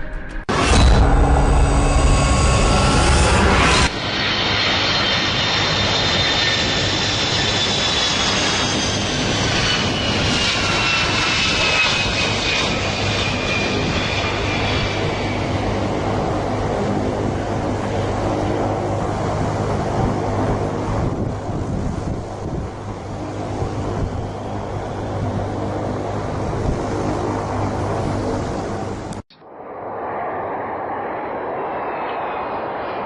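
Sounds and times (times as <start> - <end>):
high whines falling in pitch: 0.0 - 8.9, 29.1 - 33.0
airplane engine rush: 0.0 - 33.0.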